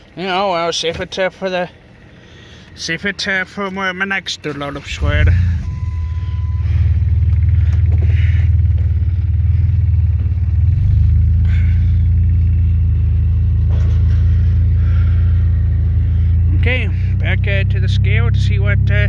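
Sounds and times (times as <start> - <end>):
truck engine and road rumble: 0.0 - 19.0.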